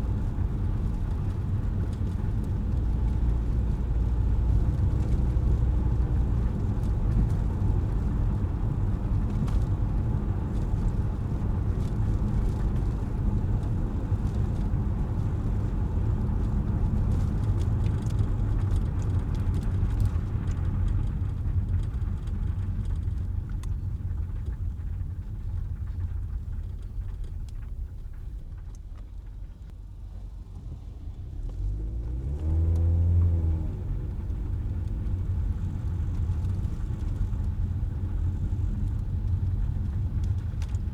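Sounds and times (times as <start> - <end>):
car engine and road noise: 0.0 - 40.9
engine revving: 31.2 - 34.3.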